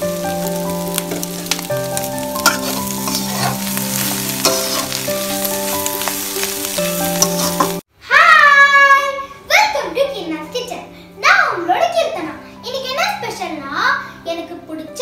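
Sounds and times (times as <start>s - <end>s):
melody of held notes: 0.0s - 7.8s
food sizzling in a pan: 0.0s - 7.9s
metal spatula scraping a pan: 2.3s - 7.8s.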